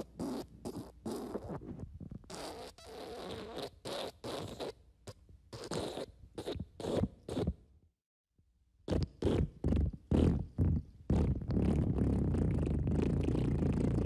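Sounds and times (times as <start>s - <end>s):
fart sounds: 0.0s - 4.8s, 8.9s - 14.0s.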